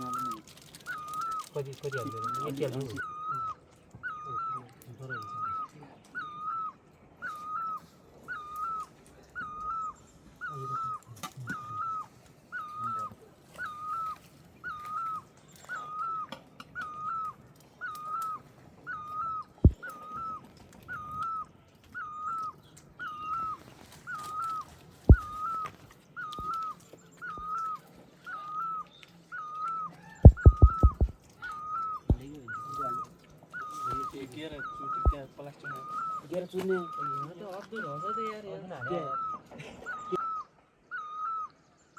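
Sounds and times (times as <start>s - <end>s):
sharp knocks: 30.3s - 31.1s.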